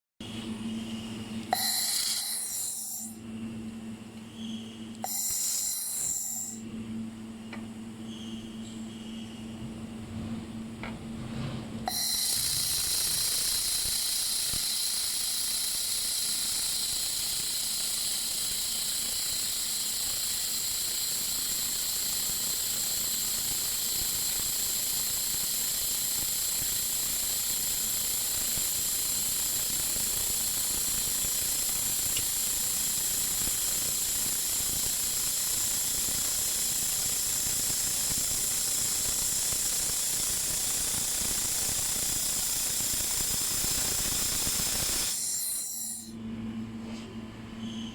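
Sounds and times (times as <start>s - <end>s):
laser welder hissing: 1.5s - 3.2s, 5.0s - 6.6s, 11.9s - 46.2s.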